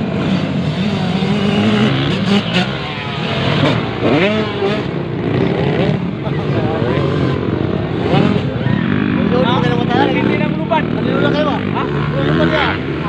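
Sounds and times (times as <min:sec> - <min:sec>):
motocross engines racing: 0:00.0 - 0:13.0.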